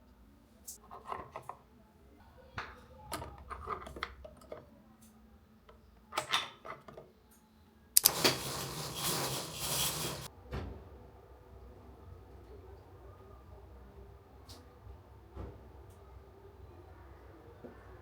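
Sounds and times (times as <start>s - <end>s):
objects clicking and tapping: 8.0s - 10.3s.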